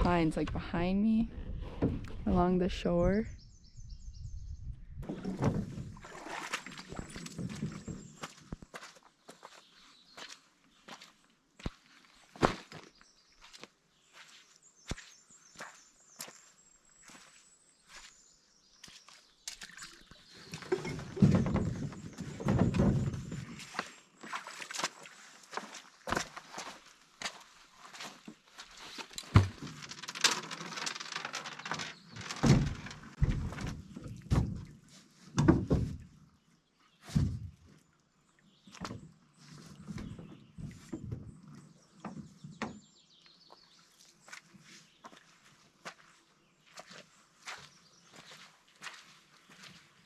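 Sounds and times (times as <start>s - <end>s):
dull knocks and thumps: 5.0s - 8.4s, 20.5s - 23.6s, 29.2s - 29.9s, 31.4s - 34.8s, 35.4s - 36.0s
footsteps on a trail: 7.6s - 21.2s, 23.3s - 29.4s, 43.5s - 50.0s.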